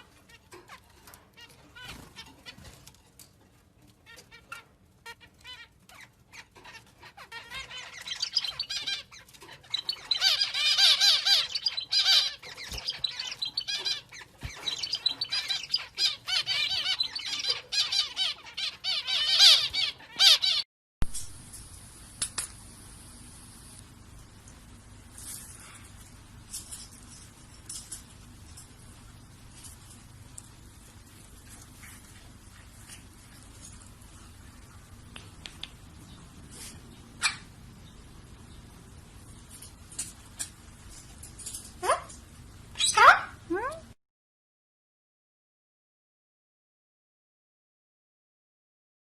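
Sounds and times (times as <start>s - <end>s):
bird squawking and chattering: 4.0s - 20.6s, 42.8s - 43.9s
faint steady hiss: 21.0s - 42.8s.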